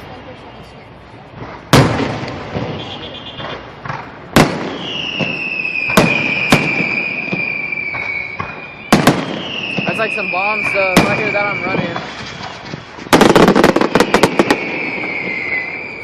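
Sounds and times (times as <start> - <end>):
firework pops: 1.3 - 15.5
firework whistle dropping in pitch: 2.6 - 3.6, 4.7 - 12.7, 13.9 - 16.0.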